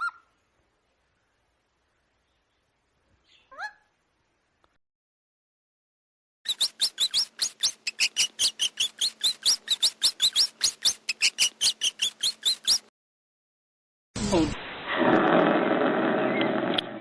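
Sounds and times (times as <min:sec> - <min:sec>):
bird chirping rapidly: 0:06.5 - 0:12.9.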